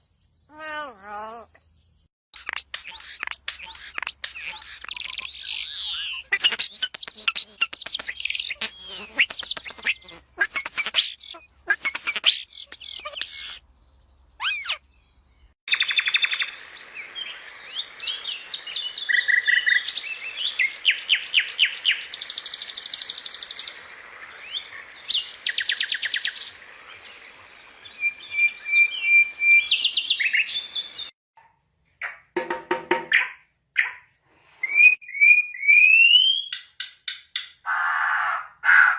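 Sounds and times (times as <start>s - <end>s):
parrot chirping and calling: 0.5s - 1.6s, 2.4s - 13.6s, 14.4s - 14.8s.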